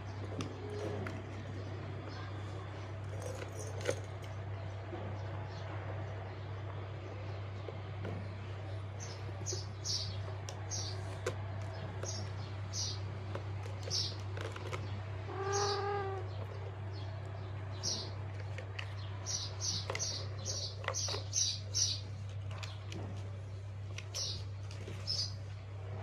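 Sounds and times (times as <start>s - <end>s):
small bird chirping: 13.8s - 14.3s, 15.3s - 17.0s, 19.2s - 22.8s
cat meow: 15.3s - 16.3s.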